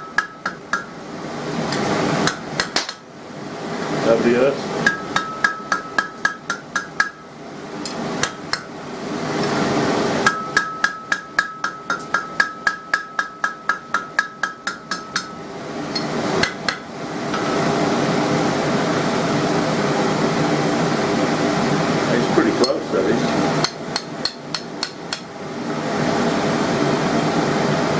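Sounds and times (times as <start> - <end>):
hammer striking steel on anvil: 0.0 - 1.0, 4.8 - 8.7, 10.2 - 17.6, 22.6 - 22.9, 23.6 - 25.3.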